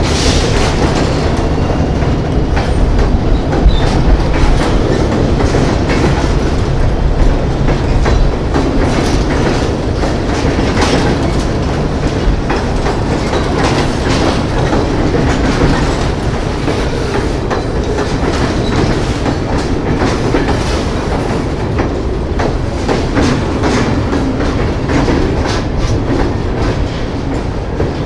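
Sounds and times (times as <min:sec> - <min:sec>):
freight train wheels rumbling: 0:00.0 - 0:28.0
wheels clacking on rail joints: 0:00.0 - 0:28.0.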